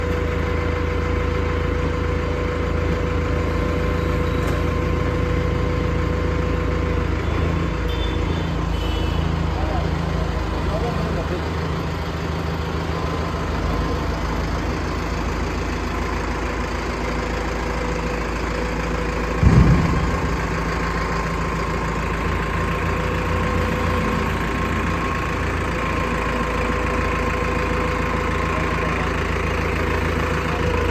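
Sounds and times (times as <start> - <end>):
diesel tractor engine idling: 0.0 - 30.9
loud thump: 19.4 - 21.4.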